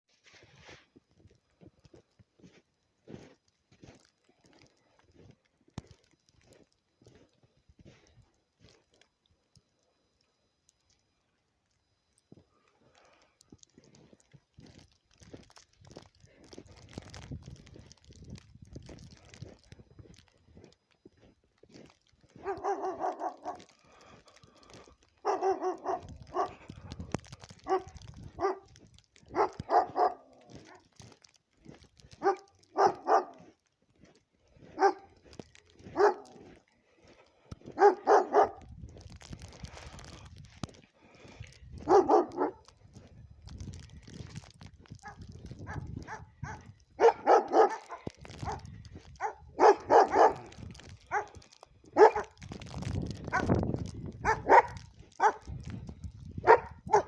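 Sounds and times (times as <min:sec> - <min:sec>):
dog barking: 0:22.3 - 0:23.7, 0:25.2 - 0:26.7, 0:27.5 - 0:30.9, 0:32.1 - 0:33.5, 0:34.7 - 0:35.1, 0:35.8 - 0:36.5, 0:37.7 - 0:38.7, 0:41.8 - 0:42.7, 0:45.0 - 0:52.4, 0:53.3 - 0:53.5, 0:54.2 - 0:55.5, 0:56.4 - 0:57.0.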